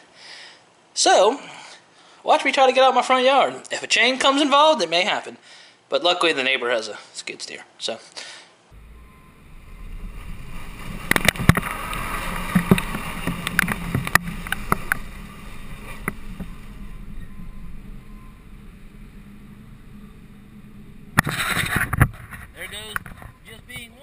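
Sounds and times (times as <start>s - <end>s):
pickup truck engine running: 8.7s - 24.0s
clicks and knocks: 10.8s - 16.6s.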